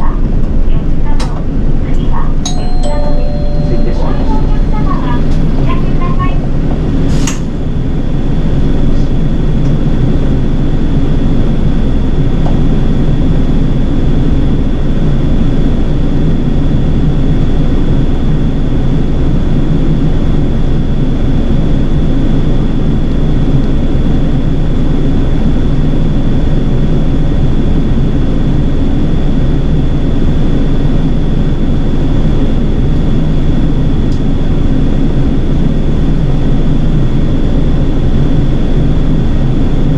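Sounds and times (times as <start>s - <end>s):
bus engine rumbling: 0.0s - 10.5s
faint high whine: 2.5s - 9.3s
short click: 7.2s - 7.5s.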